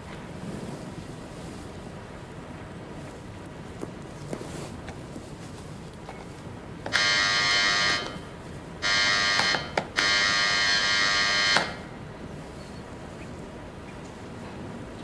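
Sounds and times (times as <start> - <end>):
electric door buzzer: 6.9 - 8.2, 8.8 - 11.9.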